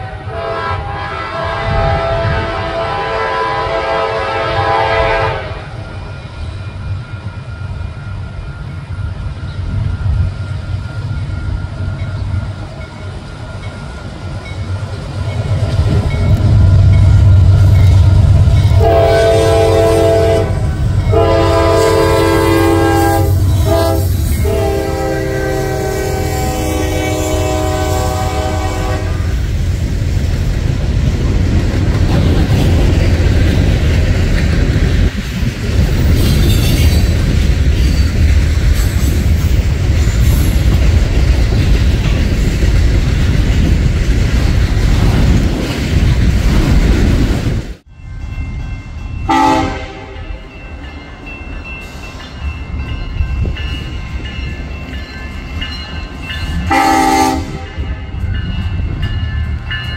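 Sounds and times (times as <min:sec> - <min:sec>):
train horn: 0:00.0 - 0:05.8, 0:18.7 - 0:29.4, 0:49.2 - 0:50.5, 0:56.6 - 0:58.1
freight train rumbling past: 0:00.0 - 0:59.9
crossing bells ringing: 0:05.8 - 0:29.3, 0:47.9 - 0:59.9
train wheel clatter: 0:05.8 - 0:47.8.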